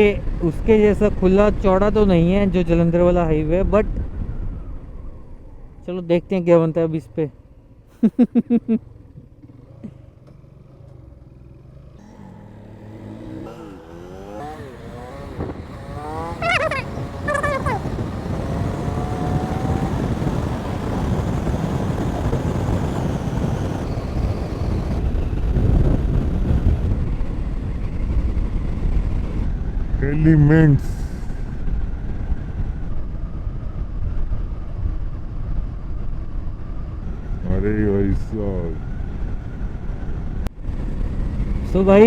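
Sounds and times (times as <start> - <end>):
motorcycle accelerating through gears: 8.7 - 42.0
wind on microphone: 12.9 - 30.0.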